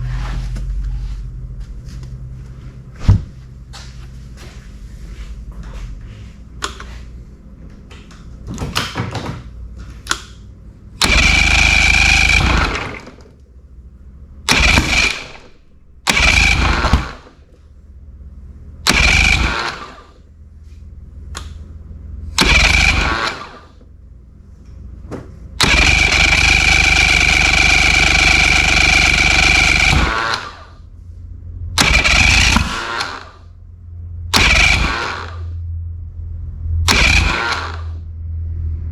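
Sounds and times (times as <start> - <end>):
starter whining: 5.5 - 38.9
outboard motor starter cranking: 11.0 - 13.5, 14.4 - 17.6, 18.8 - 20.2, 22.3 - 23.9, 25.6 - 30.9, 31.8 - 33.6, 34.3 - 35.6, 36.8 - 38.0.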